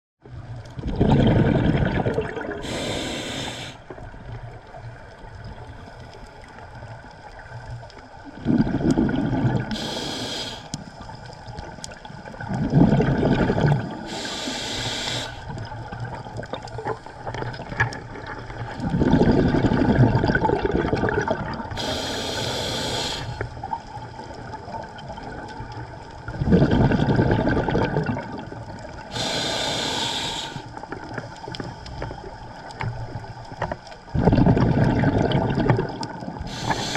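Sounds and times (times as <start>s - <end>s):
exhaled bubbles rumbling: 0.3s - 10.0s, 11.2s - 22.8s, 23.4s - 29.7s, 32.2s - 36.9s
regulator inhalation hiss: 2.6s - 3.9s, 9.7s - 11.2s, 14.0s - 15.5s, 21.8s - 23.5s, 29.1s - 30.8s, 36.5s - 36.9s.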